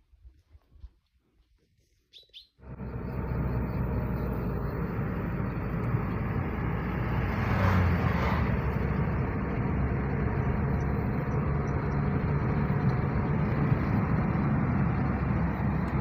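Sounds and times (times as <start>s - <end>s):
bird chirps: 2.1s - 4.9s.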